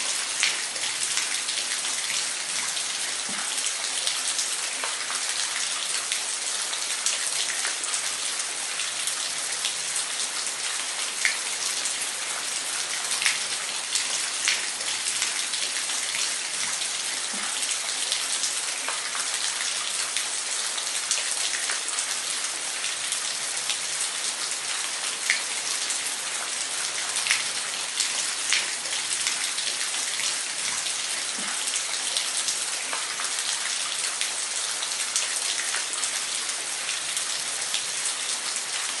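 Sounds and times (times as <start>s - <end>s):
sharp splashes and drips: 0.0s - 39.0s.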